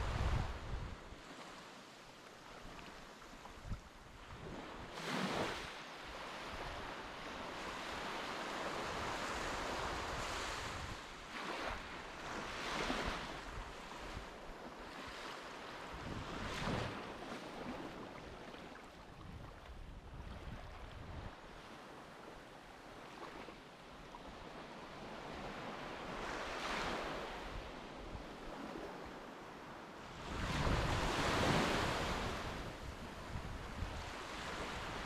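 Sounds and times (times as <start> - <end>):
wind on microphone: 0.0 - 1.2, 3.4 - 5.7, 7.8 - 14.5, 15.8 - 18.5, 19.1 - 21.6, 30.1 - 35.0.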